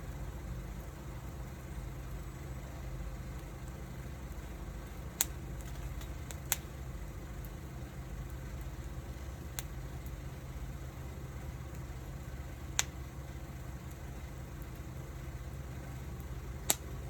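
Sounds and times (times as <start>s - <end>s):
wood fire rumbling: 0.0s - 17.0s
wood crackling pops: 3.2s - 10.3s, 11.4s - 17.0s.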